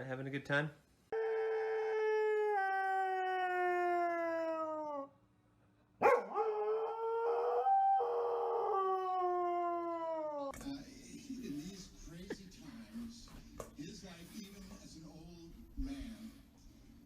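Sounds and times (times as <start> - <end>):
dog howling: 1.1 - 5.2, 6.0 - 10.5.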